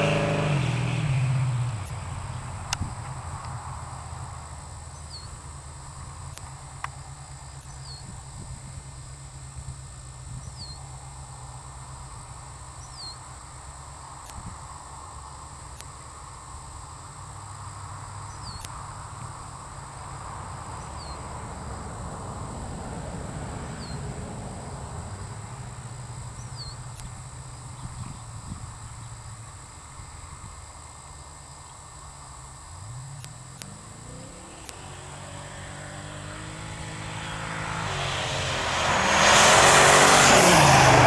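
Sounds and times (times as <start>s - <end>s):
car engine idling: 0.0s - 35.4s
bird chirping: 4.9s - 5.4s, 12.8s - 13.3s, 18.3s - 18.7s.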